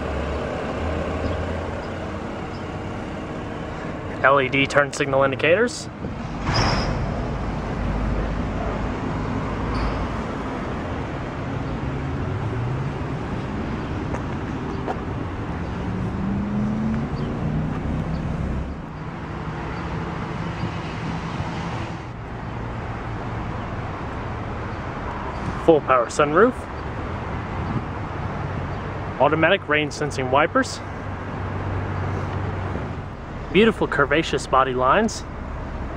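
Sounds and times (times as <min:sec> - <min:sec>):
road traffic noise: 0:00.0 - 0:35.9
vehicle engine rising in pitch: 0:07.8 - 0:22.2.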